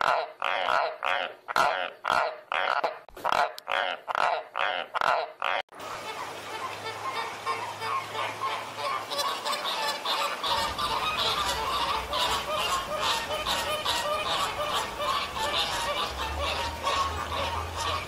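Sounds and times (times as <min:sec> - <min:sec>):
flamingos honking: 0:00.0 - 0:18.0.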